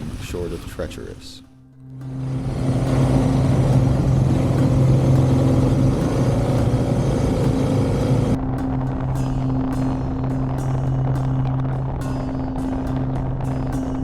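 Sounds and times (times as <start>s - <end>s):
motorcycle engine humming: 1.8s - 14.0s
wind and road noise: 1.8s - 14.0s.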